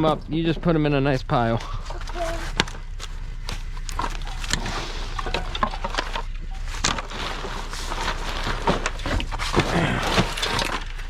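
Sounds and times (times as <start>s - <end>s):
scrap items knocking and clattering: 4.0s - 11.0s.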